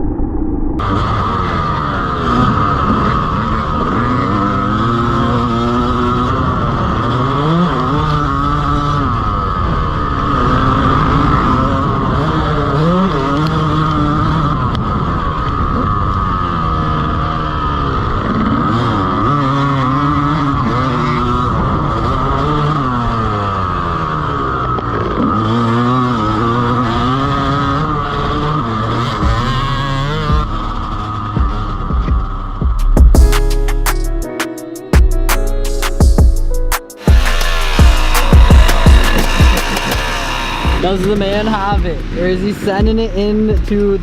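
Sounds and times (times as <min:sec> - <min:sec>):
dirt bike engine revving: 0:00.8 - 0:33.0, 0:36.9 - 0:44.0
steady high tone: 0:34.6 - 0:42.5.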